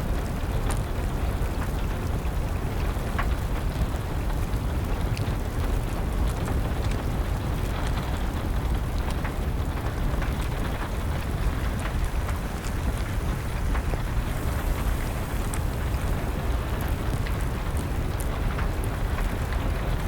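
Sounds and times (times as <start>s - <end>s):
wood fire crackling and popping: 0.1s - 20.0s
rain hissing: 9.6s - 20.0s.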